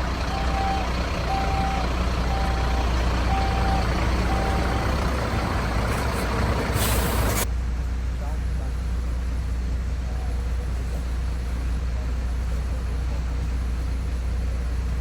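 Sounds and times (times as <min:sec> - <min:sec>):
truck reversing alarm beeping: 0:00.0 - 0:07.4
low truck engine running: 0:00.0 - 0:07.5
short hiss: 0:06.8 - 0:07.5.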